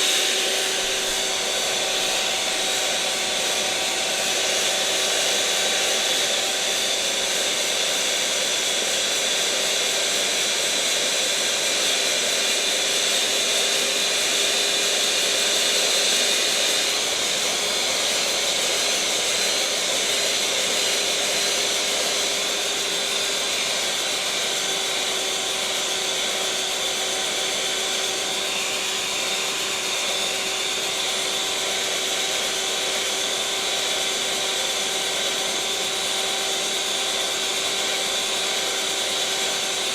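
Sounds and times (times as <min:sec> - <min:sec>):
electric mixer motor whirring: 0:00.0 - 0:39.9.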